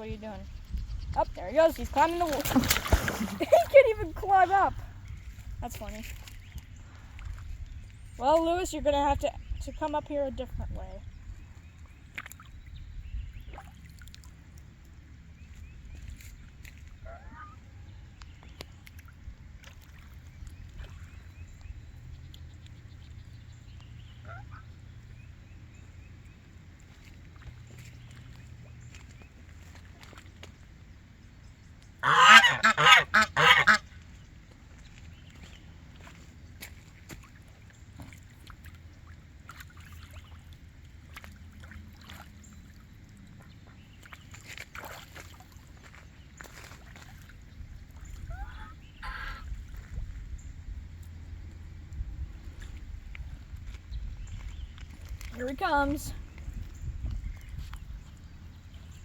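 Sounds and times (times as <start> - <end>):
waterfowl splashing in water: 1.5 - 4.8, 11.6 - 59.0
waterfowl calls: 17.0 - 17.7, 24.2 - 24.8, 32.0 - 34.0, 48.0 - 49.5
low background rumble: 47.4 - 59.0.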